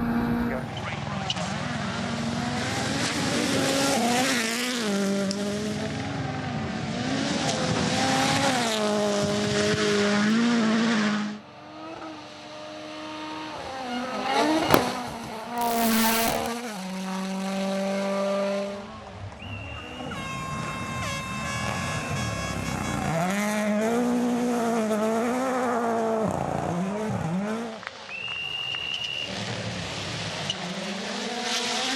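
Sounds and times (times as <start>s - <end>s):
rally car engines revving: 0.0s - 18.9s, 23.1s - 27.8s, 29.4s - 31.9s
loud hiss: 15.6s - 16.5s
sharp crack: 15.6s - 16.6s.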